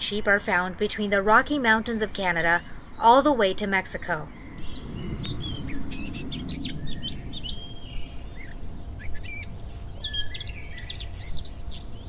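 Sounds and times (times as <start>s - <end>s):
birds singing and calling: 0.0s - 12.0s
low background rumble: 0.0s - 12.0s.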